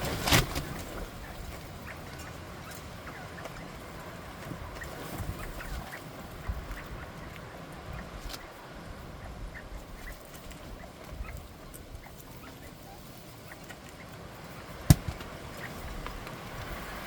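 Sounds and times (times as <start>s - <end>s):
quail chirping and clucking: 0.0s - 17.0s
wind buffeting microphone: 3.6s - 12.7s.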